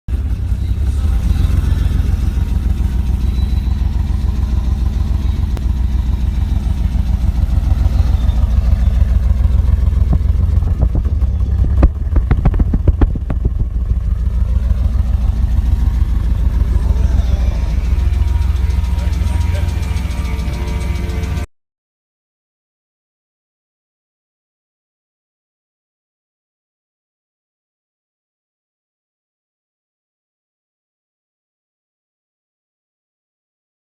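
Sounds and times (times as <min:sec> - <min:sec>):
engine exhaust rumble: 0:00.1 - 0:21.5
exhaust pops: 0:06.4 - 0:16.9.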